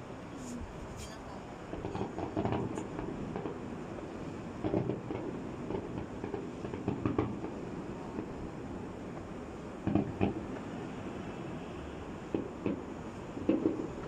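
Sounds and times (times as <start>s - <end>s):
fireworks rumble: 0.0s - 14.0s
fireworks bangs: 1.7s - 3.7s, 4.5s - 8.4s, 9.8s - 10.7s, 12.2s - 14.0s.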